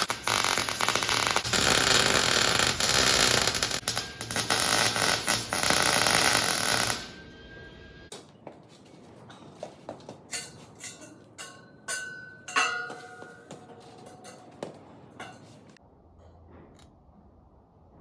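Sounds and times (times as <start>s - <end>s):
welding arc crackling: 0.0s - 7.2s.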